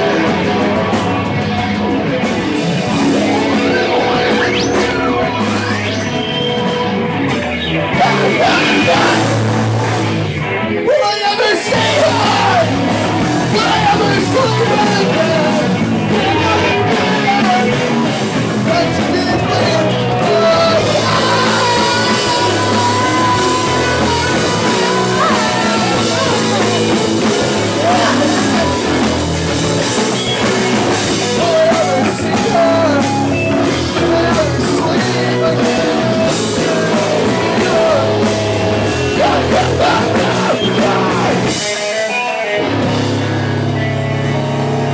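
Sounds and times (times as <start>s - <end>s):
bass guitar: 0.0s - 44.9s
drums: 0.0s - 44.9s
electric guitars: 0.0s - 44.9s
person singing: 7.9s - 9.5s, 18.7s - 30.0s, 31.0s - 38.4s, 39.0s - 41.7s.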